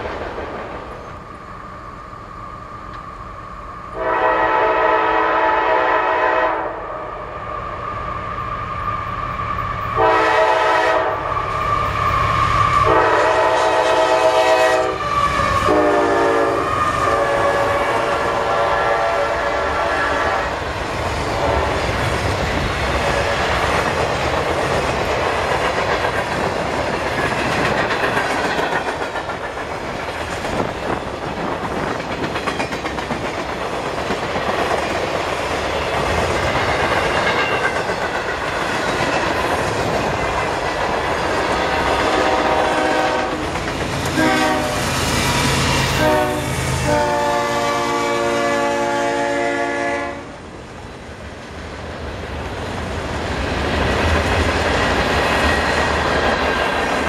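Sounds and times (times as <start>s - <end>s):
locomotive horn blowing: 4.0s - 6.8s, 10.0s - 11.3s, 12.8s - 20.6s, 42.0s - 43.4s, 44.1s - 44.9s, 45.9s - 50.4s.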